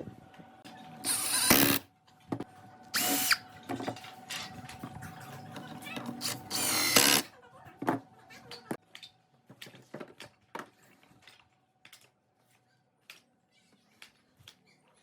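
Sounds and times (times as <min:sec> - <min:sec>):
power drill spinning: 0:01.0 - 0:01.8, 0:03.0 - 0:03.4, 0:06.2 - 0:07.3.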